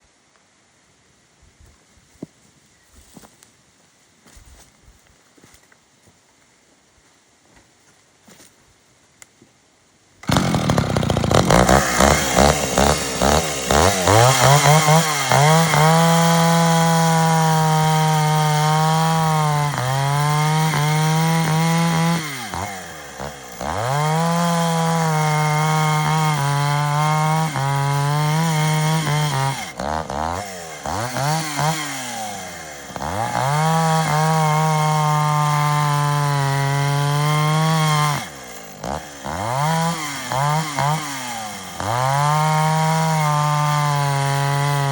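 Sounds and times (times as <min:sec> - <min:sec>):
chainsaw revving: 0:10.2 - 0:44.9.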